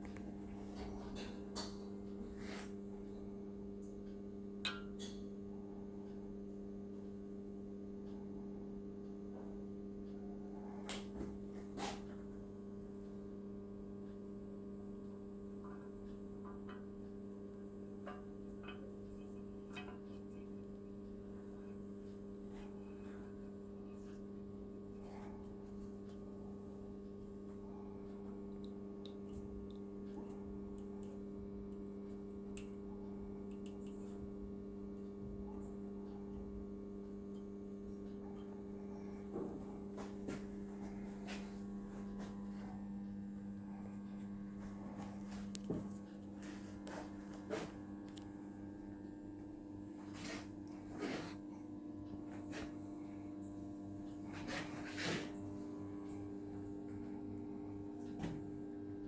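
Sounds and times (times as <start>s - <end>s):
steady electrical hum: 0.0s - 59.0s
faint clicks and taps: 33.4s - 36.6s.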